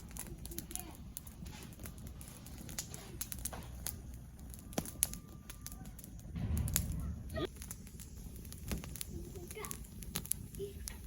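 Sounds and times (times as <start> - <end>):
twig bonfire crackling: 0.0 - 11.0
low rumble: 6.2 - 9.1.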